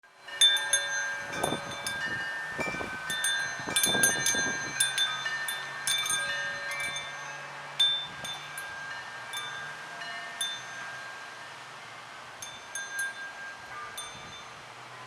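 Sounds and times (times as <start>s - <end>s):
wind chimes ringing: 0.2s - 15.0s
wind rumbling on microphone: 0.4s - 9.6s.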